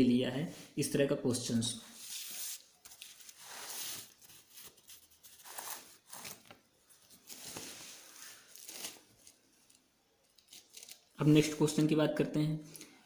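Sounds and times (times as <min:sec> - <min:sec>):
paper rustling and scratching: 0:02.0 - 0:09.4.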